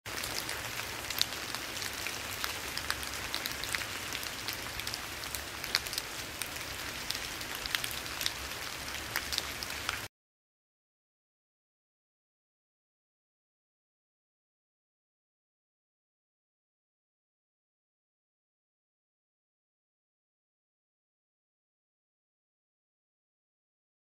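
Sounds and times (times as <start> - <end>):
rain pattering on leaves: 0.1 - 10.1.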